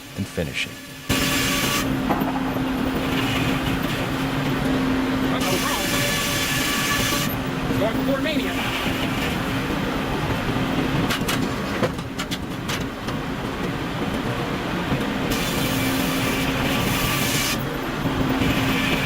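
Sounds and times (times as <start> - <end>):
sawmill machinery humming: 0.0 - 19.0
clattering knocks: 2.0 - 4.0.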